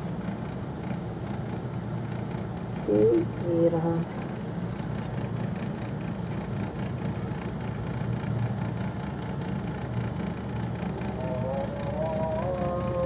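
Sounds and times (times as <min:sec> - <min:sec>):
low machine hum: 0:00.0 - 0:13.0
steady musical tones: 0:11.0 - 0:13.0.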